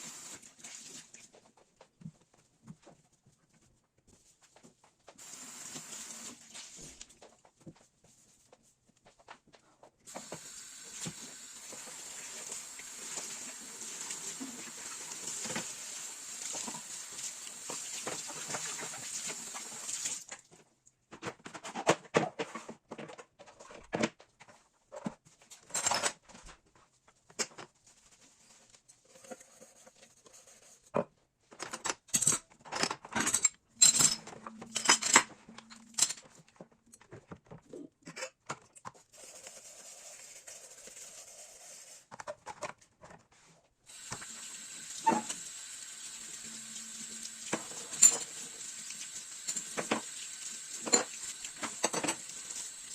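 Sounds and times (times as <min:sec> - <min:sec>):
dishes clattering and clinking: 0:31.0 - 0:38.7, 0:47.5 - 0:48.5, 0:50.8 - 0:52.5.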